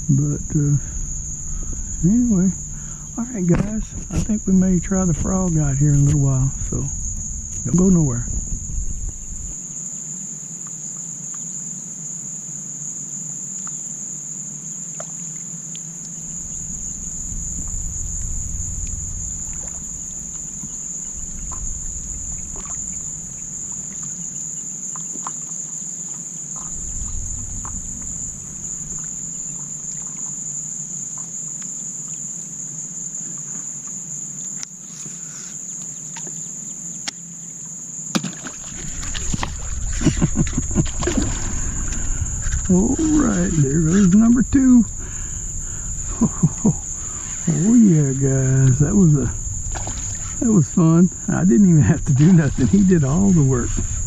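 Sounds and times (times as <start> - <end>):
low rumble: 0.0 - 9.8, 16.1 - 25.2, 26.5 - 30.7, 38.6 - 54.0
insects droning: 0.0 - 54.0.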